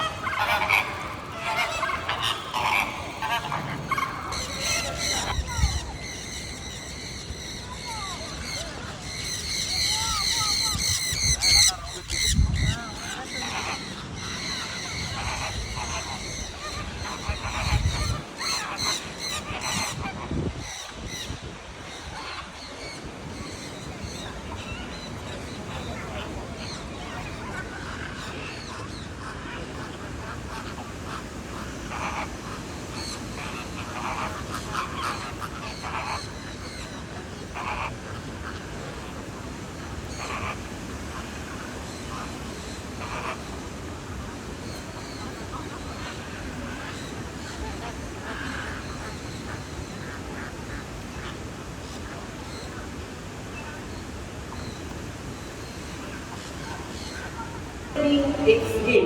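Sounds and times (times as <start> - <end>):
rasping bird calls: 0.0 - 8.4
birds calling harshly: 0.0 - 59.0
steady background hiss: 0.0 - 59.0.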